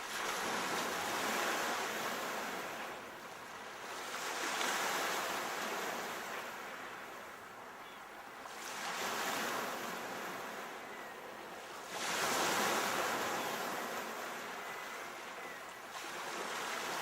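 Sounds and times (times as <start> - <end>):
sea waves breaking: 11.8 - 17.0.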